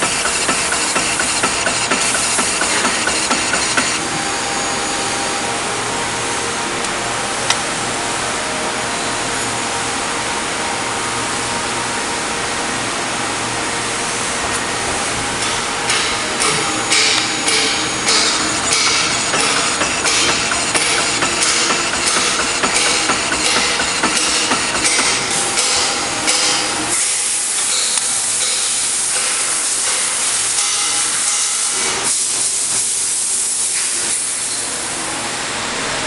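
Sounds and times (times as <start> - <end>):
machine clacks and knocks: 0.0 - 4.3, 14.4 - 33.0
machine hissing and humming: 0.0 - 36.0.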